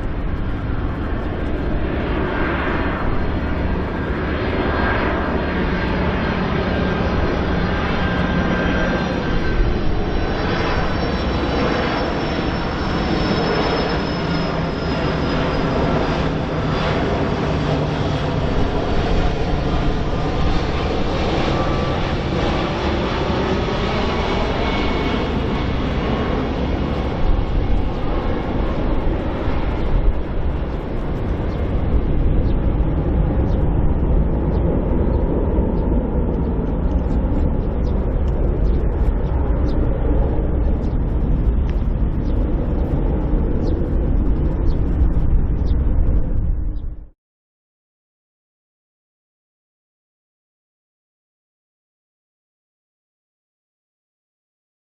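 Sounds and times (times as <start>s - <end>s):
jet airliner passing: 0.0s - 47.2s.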